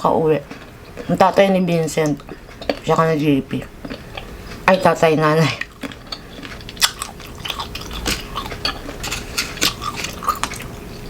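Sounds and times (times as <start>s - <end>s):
crunchy chewing of mango: 2.2s - 3.0s, 3.7s - 4.8s, 5.4s - 11.0s.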